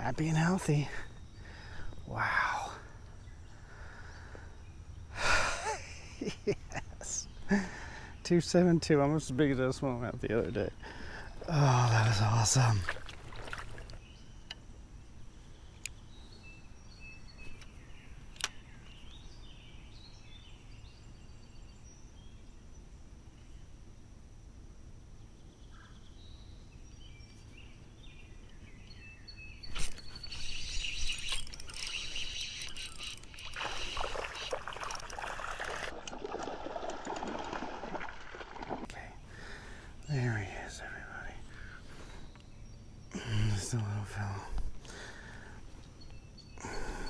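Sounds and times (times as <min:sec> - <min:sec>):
creek ambience: 0:00.0 - 0:14.6, 0:29.6 - 0:42.3
birds chirping: 0:00.0 - 0:22.7, 0:25.3 - 0:35.9, 0:38.8 - 0:47.0
water splashing and sloshing: 0:12.1 - 0:14.0, 0:32.8 - 0:38.9
sharp clicks: 0:29.7 - 0:35.9.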